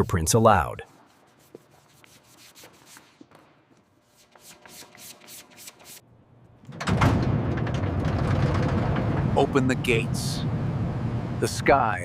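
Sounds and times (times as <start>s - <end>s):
polishing cloth rubbing metal: 0.9s - 3.2s
loud steady rumbling noise: 6.8s - 12.0s.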